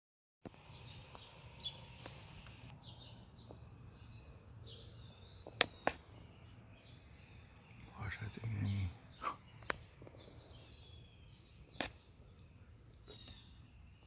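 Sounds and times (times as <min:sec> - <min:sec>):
bird chirps: 0:00.5 - 0:14.0
sharp clicks: 0:09.6 - 0:09.8.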